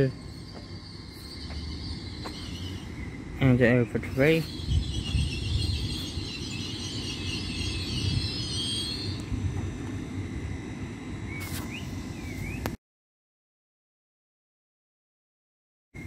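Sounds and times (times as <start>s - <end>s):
brake squeal: 0.0s - 3.0s
train rumble: 0.0s - 12.8s.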